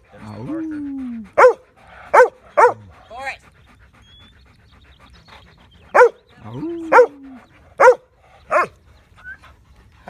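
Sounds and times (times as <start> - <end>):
dog barking: 1.4 - 2.8, 6.0 - 6.2, 6.9 - 7.1, 7.8 - 8.7.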